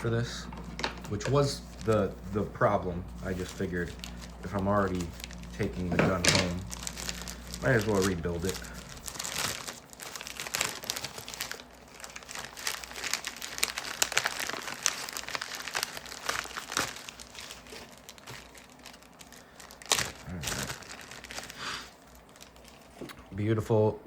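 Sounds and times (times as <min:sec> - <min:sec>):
plastic packaging crinkling: 0:00.0 - 0:23.4.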